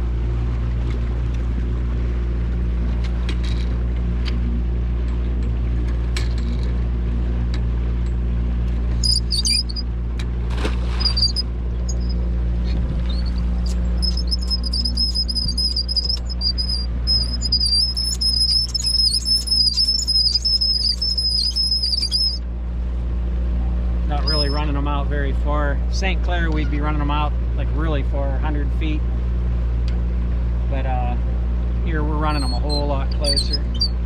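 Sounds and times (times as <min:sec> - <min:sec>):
boat motor humming: 0:00.0 - 0:34.0
short high chirps: 0:09.0 - 0:09.8, 0:11.0 - 0:12.2, 0:13.1 - 0:22.4, 0:24.2 - 0:24.6
high wavering whistle: 0:09.0 - 0:09.9, 0:11.0 - 0:12.2, 0:13.1 - 0:22.4, 0:24.2 - 0:24.7, 0:32.2 - 0:34.0.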